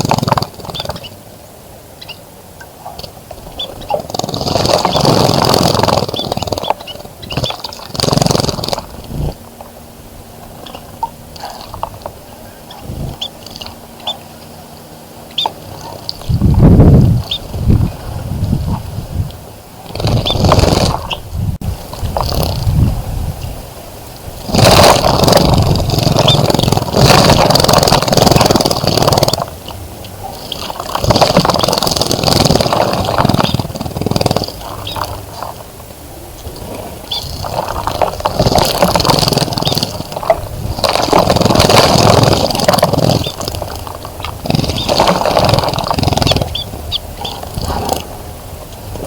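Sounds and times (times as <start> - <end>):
bird chirps: 0.0 - 1.2, 2.0 - 9.4, 10.4 - 17.9, 19.9 - 21.3, 29.6 - 35.6, 36.4 - 40.8, 42.6 - 43.8, 44.4 - 48.0.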